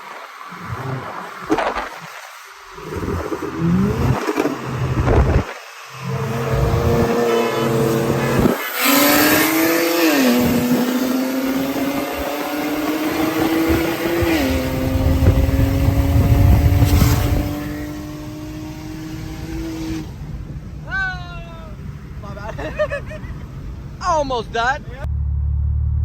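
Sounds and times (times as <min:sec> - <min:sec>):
turbocharged engine accelerating: 0:00.0 - 0:20.9, 0:25.0 - 0:26.0.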